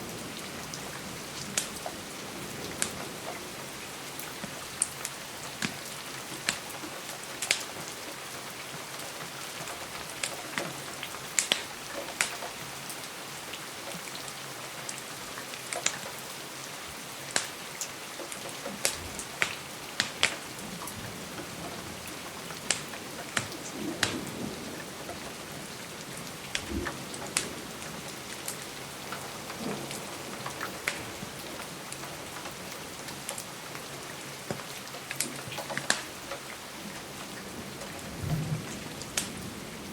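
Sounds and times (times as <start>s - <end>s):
rain falling on a window: 0.0s - 39.9s
wood fire crackling: 11.3s - 12.3s, 17.3s - 39.9s.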